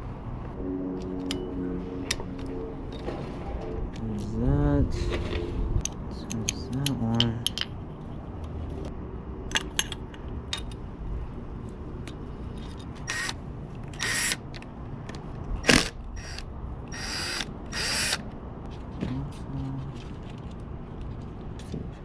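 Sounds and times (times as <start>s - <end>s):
handheld power tool bursts: 13.0s - 13.4s, 14.0s - 14.4s, 15.6s - 18.2s.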